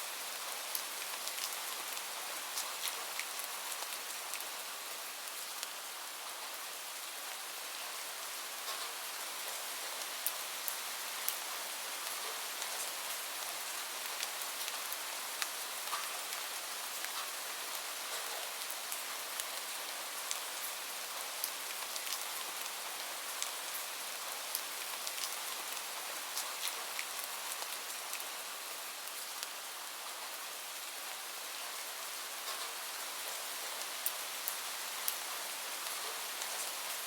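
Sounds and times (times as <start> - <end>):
steady rain hiss: 0.0 - 37.0.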